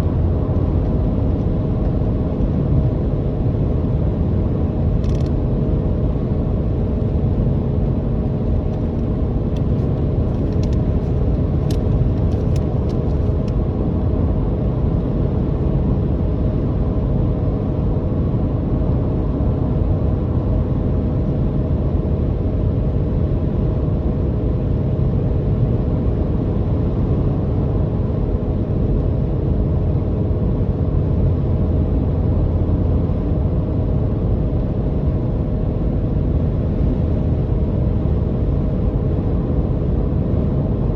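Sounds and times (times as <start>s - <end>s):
road rumble: 0.0s - 16.0s.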